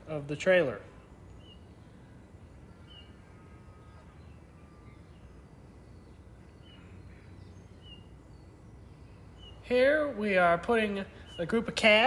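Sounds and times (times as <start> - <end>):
small bird chirping: 2.6 - 10.0.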